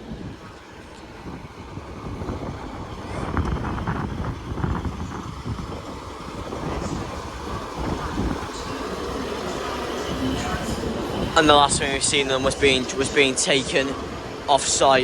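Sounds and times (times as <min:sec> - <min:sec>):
railway station noise: 0:00.0 - 0:15.0
train rumbling: 0:00.0 - 0:15.0.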